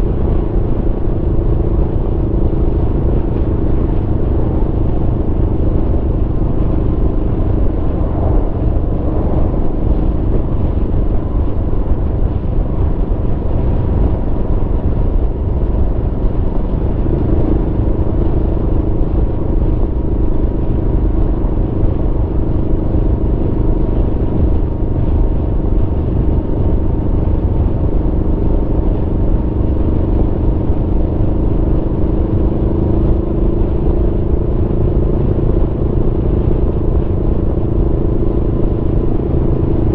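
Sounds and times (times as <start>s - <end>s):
motorcycle engine cruising: 0.0s - 39.9s
wind and road rumble: 0.0s - 39.9s.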